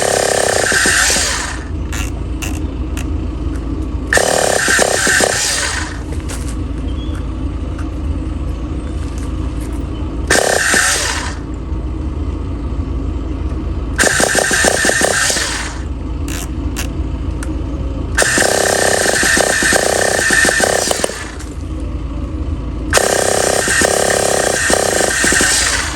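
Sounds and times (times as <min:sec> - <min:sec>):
model glow engine revving: 0:00.0 - 0:03.1, 0:04.1 - 0:06.1, 0:10.3 - 0:11.5, 0:14.0 - 0:16.9, 0:18.2 - 0:21.5, 0:22.9 - 0:25.9.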